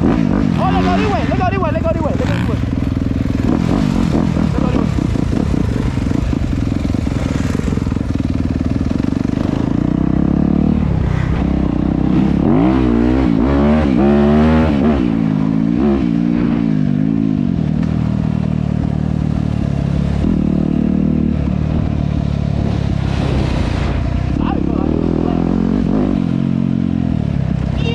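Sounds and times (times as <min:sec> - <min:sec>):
dirt bike engine revving: 0:00.0 - 0:16.6.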